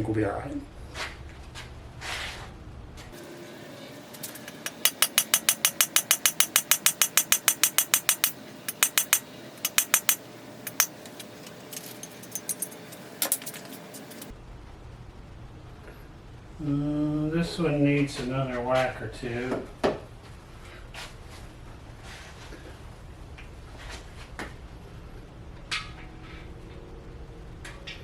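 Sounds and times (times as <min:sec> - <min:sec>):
hammer blows on metal: 0:04.2 - 0:11.0.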